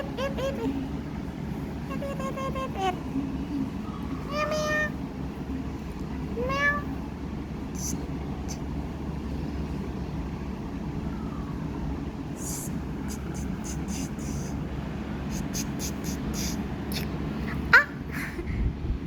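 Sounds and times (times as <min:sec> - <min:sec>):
low background rumble: 0:00.0 - 0:19.0
cat meowing: 0:04.2 - 0:05.0, 0:06.3 - 0:07.0.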